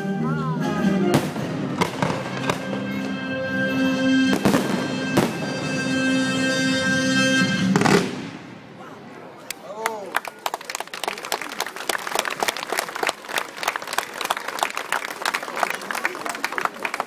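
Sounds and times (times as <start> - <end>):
orchestral music: 0.0 - 8.6
fireworks bangs: 1.1 - 6.6, 7.5 - 8.8.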